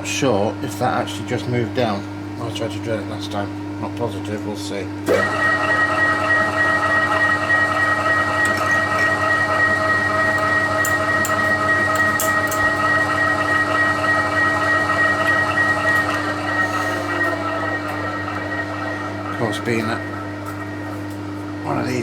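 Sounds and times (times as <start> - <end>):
milling machine running: 5.1 - 22.0.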